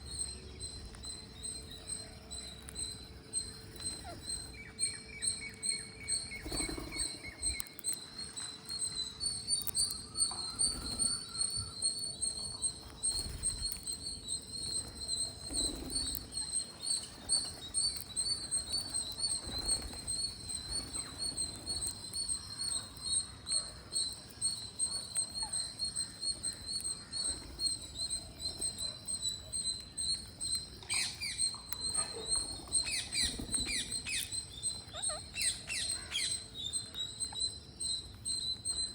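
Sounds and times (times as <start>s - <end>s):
high fast-pulsing bird chirp: 0.0s - 7.7s, 8.9s - 23.6s
sharper bird calls: 0.0s - 38.9s.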